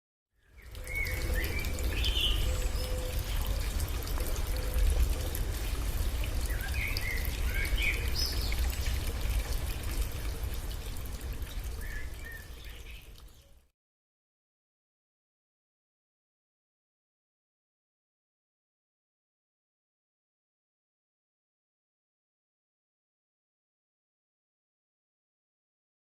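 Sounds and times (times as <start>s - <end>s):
water flowing and trickling: 0.4s - 13.7s.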